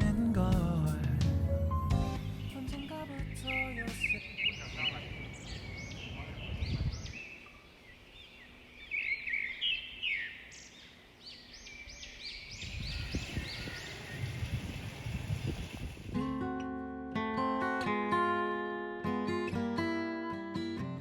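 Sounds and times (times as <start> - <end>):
birds chirping: 1.9 - 16.2.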